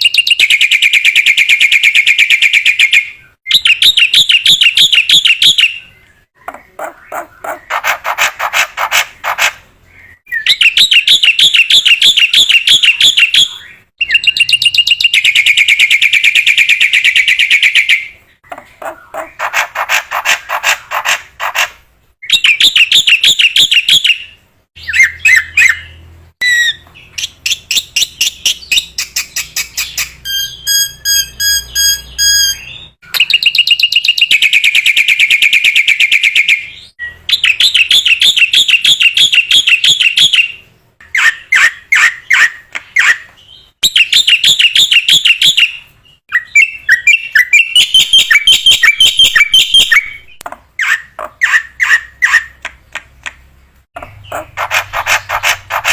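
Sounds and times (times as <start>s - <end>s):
bird whistled notes: 24.9s - 40.4s, 43.9s - 50.3s
myna chattering and trilling: 54.0s - 55.9s.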